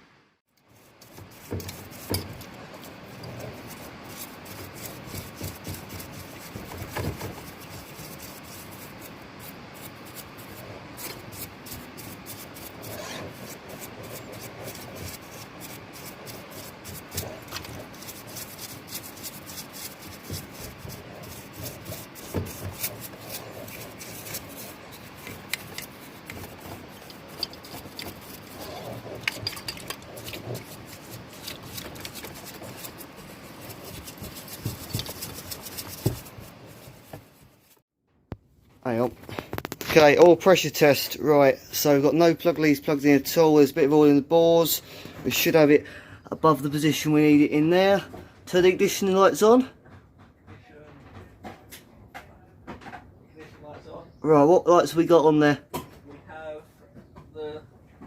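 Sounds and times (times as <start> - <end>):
rubbing and scraping of small parts: 0.6 - 37.8, 38.9 - 41.1.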